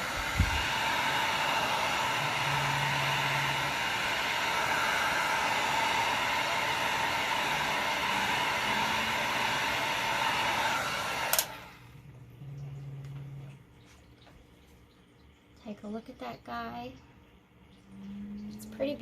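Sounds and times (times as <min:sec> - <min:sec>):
heat gun blowing: 0:00.0 - 0:11.8
heat gun switch click: 0:11.3 - 0:11.6.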